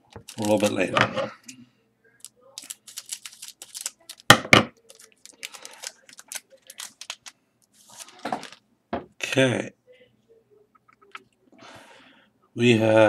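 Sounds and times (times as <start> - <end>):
wrapper crinkling and tearing: 0.2 - 0.8, 2.2 - 8.6.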